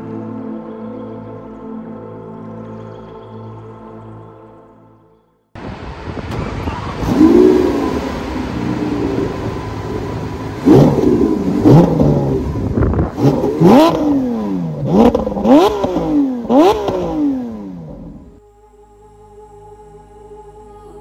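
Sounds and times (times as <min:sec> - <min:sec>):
car engine revving: 0:06.0 - 0:18.4.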